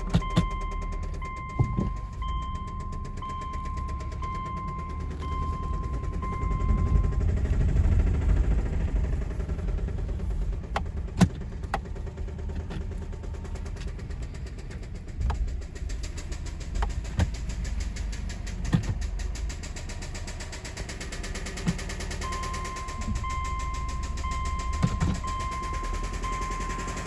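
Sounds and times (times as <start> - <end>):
car engine running: 0.0 - 27.0
engine rod knock: 0.0 - 27.0.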